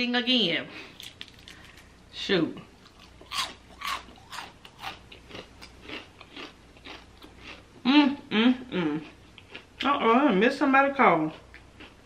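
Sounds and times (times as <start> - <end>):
crunchy chewing of fried chicken: 2.8 - 7.9, 9.0 - 9.8, 11.2 - 12.0.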